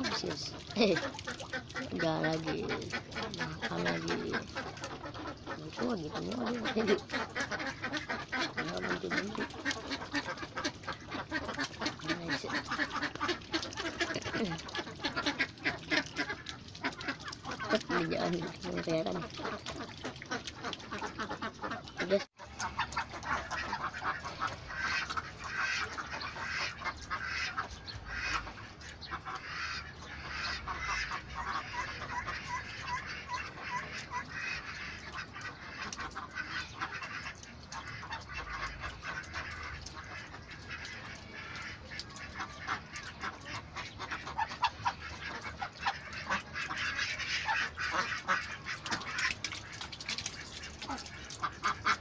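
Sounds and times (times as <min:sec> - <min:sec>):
ducks quacking: 0:00.0 - 0:52.0.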